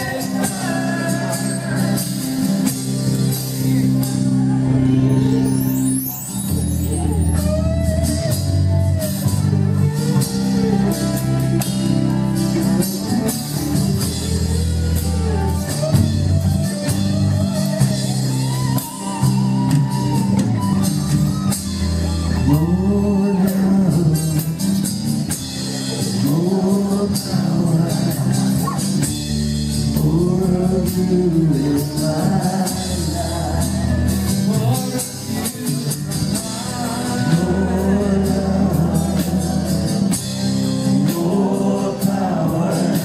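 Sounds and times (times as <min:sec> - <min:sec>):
person singing: 0:00.0 - 0:05.6, 0:22.0 - 0:24.8, 0:25.6 - 0:29.0, 0:29.8 - 0:43.0
drum kit: 0:00.0 - 0:43.0
electric guitar: 0:00.0 - 0:43.0
keyboard: 0:00.0 - 0:43.0.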